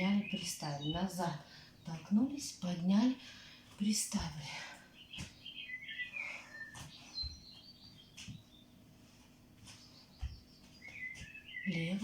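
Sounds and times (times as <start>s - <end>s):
small bird chirping: 0.0s - 2.1s, 4.9s - 8.8s, 9.6s - 12.0s
footsteps on floor: 6.7s - 11.5s.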